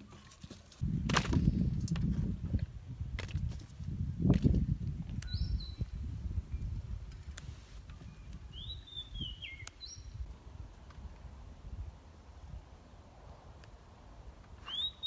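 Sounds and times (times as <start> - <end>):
bird whistling: 5.2 - 5.8, 8.5 - 10.1, 14.6 - 15.0.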